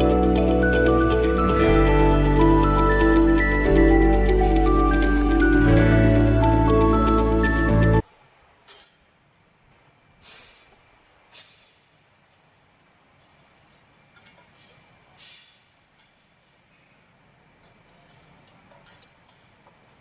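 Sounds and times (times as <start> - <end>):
background music: 0.0 - 8.0.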